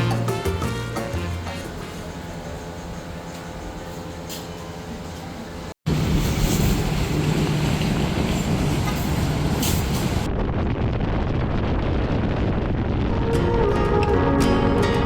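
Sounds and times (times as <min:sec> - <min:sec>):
music: 0:00.0 - 0:02.6, 0:13.1 - 0:15.0
wind rush: 0:05.9 - 0:15.0.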